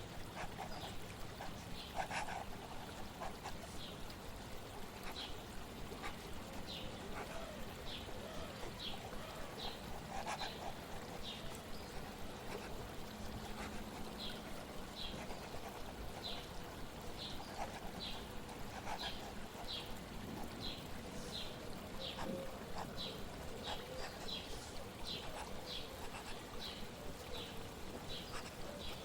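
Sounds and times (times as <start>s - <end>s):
flowing water: 0.0s - 29.0s.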